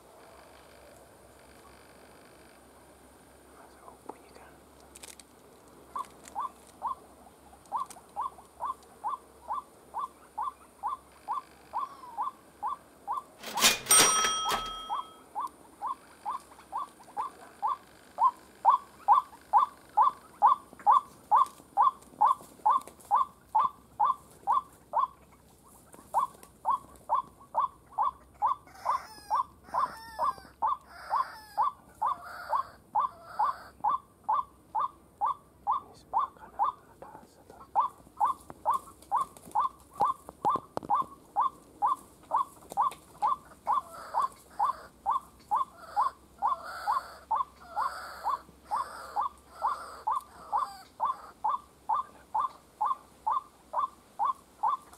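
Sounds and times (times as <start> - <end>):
higher varied bird calls: 7.6 - 25.2, 37.7 - 54.9.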